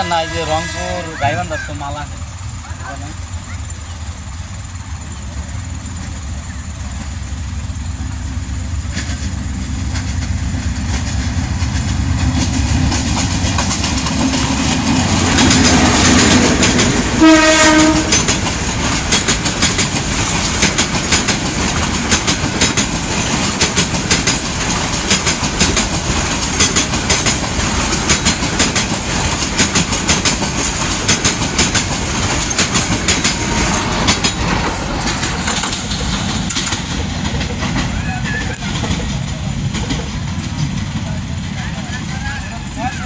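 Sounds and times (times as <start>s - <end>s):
train horn blast: 0.0s - 1.3s, 16.9s - 18.4s
diesel locomotive rumble: 0.0s - 43.0s
train wheels clickety-clack: 2.9s - 43.0s.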